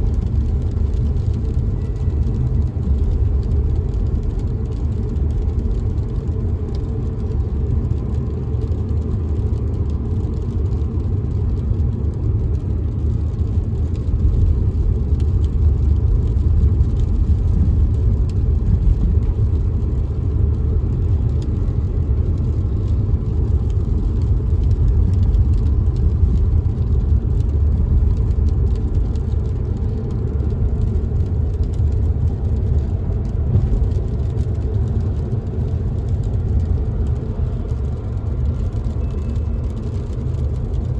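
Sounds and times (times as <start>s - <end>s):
car driving on wet road: 0.0s - 40.9s
raindrops tapping on windows: 0.0s - 40.9s.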